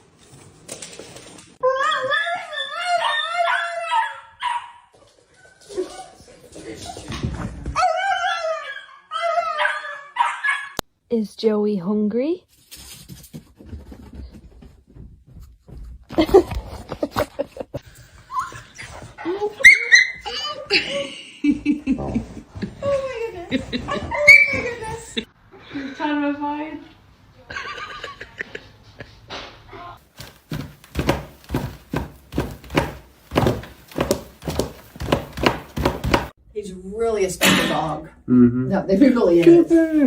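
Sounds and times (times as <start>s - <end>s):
dull thuds: 30.1s - 36.4s.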